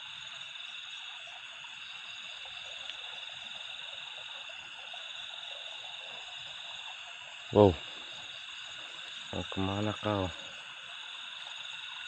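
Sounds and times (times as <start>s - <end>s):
frogs and insects calling: 0.0s - 12.0s
faint tick: 2.8s - 3.0s.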